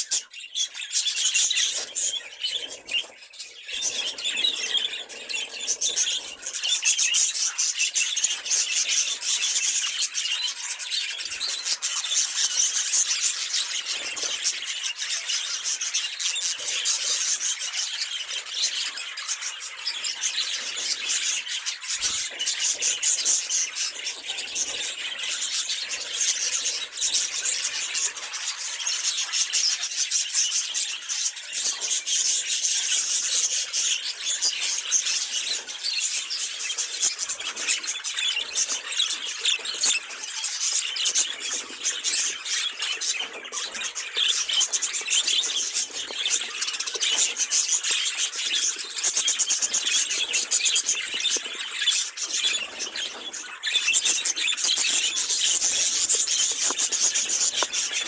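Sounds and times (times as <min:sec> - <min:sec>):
budgerigars chattering and warbling: 0:00.0 - 0:58.0.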